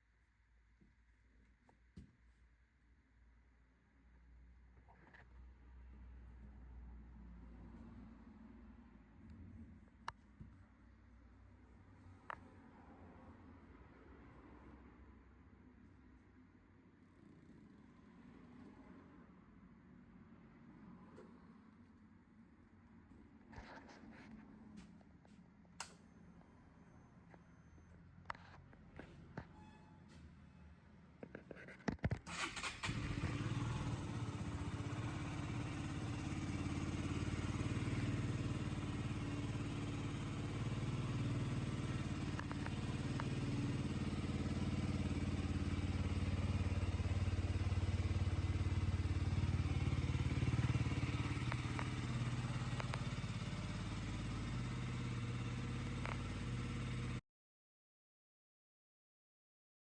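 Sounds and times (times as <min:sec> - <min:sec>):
motorcycle engine running: 0:32.3 - 0:57.2.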